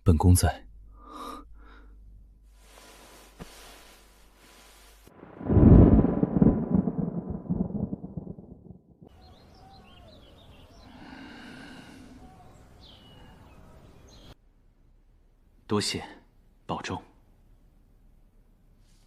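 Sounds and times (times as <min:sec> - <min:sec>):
loud rumbling boom: 0:05.2 - 0:09.0
faint chirping: 0:09.1 - 0:14.4.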